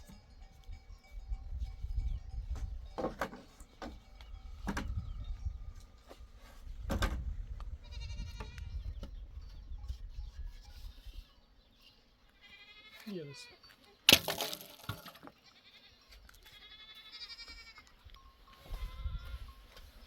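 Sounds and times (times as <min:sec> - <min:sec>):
sheep or goat bleating: 0:07.8 - 0:08.8, 0:12.4 - 0:13.7, 0:15.3 - 0:18.0.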